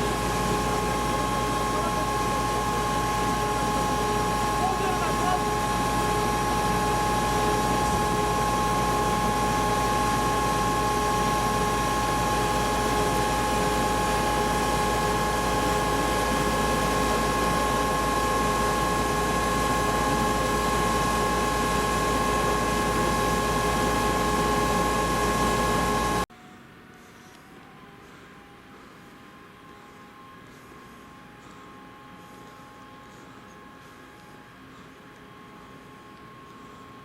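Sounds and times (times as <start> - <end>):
loud mechanical drone: 0.0 - 26.2
constant whining tones: 0.0 - 37.0.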